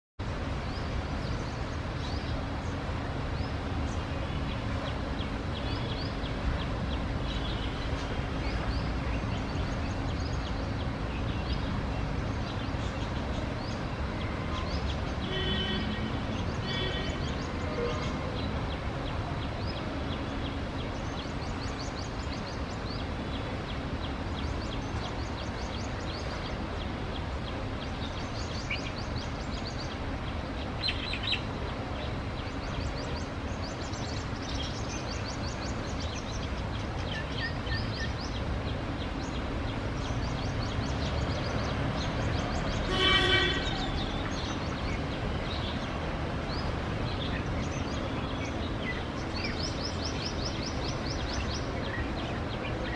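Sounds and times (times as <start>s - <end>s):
small birds chirping: 0.4s - 52.9s
loud honk: 42.9s - 43.9s.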